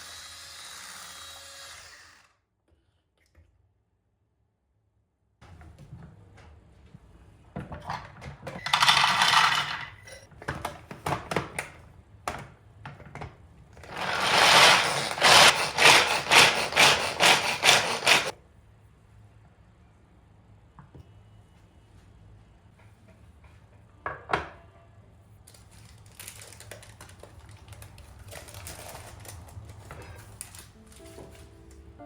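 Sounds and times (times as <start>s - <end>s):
scraping: 13.8s - 18.3s.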